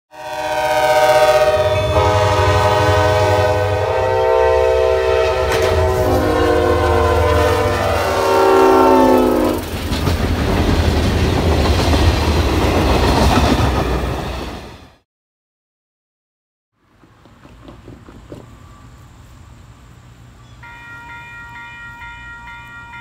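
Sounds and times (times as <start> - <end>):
locomotive horn chord: 0.1 - 9.6.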